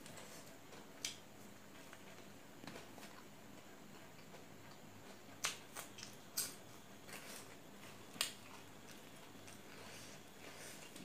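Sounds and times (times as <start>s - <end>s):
person chewing crunchy food: 4.2s - 11.0s.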